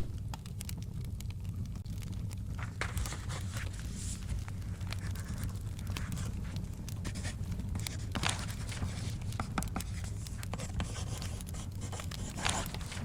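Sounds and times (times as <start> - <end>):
wood fire crackling: 0.0 - 13.0
paper page turning: 2.6 - 13.0.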